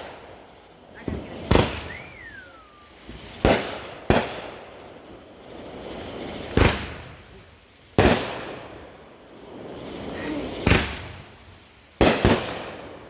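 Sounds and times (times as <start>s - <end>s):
falling firework whistle: 0.0s - 4.9s, 9.6s - 13.0s
fireworks bangs with echo: 0.0s - 13.0s.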